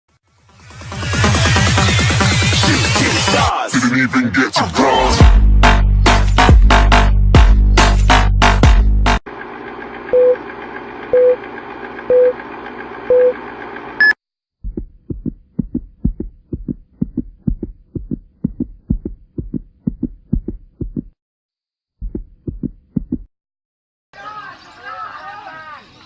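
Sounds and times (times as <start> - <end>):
heartbeat thumps: 14.6 - 21.2, 22.0 - 23.3.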